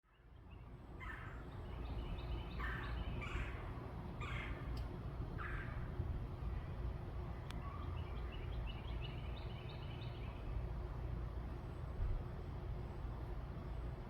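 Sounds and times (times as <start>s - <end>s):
small birds chirping softly: 0.0s - 11.1s.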